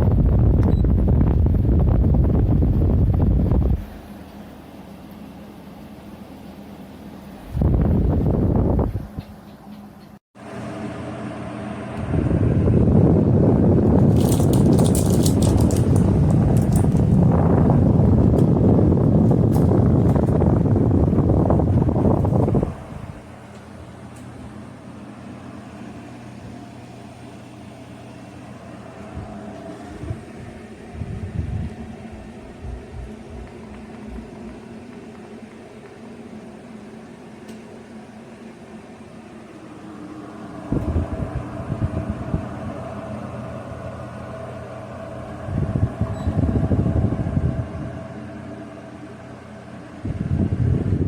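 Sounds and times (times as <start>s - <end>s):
uneven low rumbling: 0.0s - 4.2s, 7.3s - 9.4s, 10.9s - 36.9s, 39.4s - 51.0s
air conditioner humming: 0.0s - 51.0s
low bumps: 29.2s - 35.2s.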